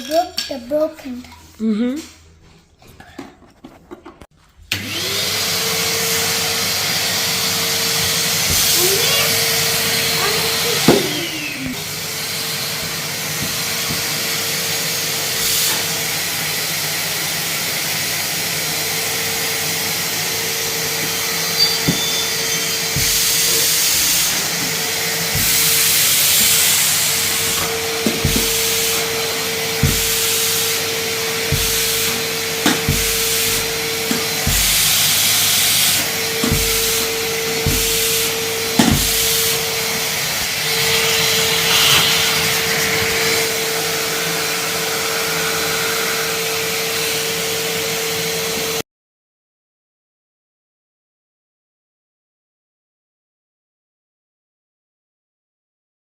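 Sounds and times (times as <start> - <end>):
vacuum cleaner running: 4.6 - 48.8.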